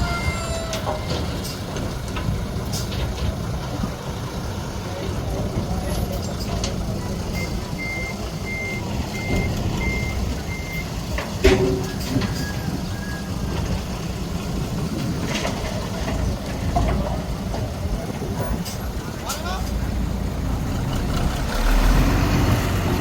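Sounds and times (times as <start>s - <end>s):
diesel machinery rumbling: 0.0s - 23.0s
backup alarm beeping: 7.3s - 11.0s.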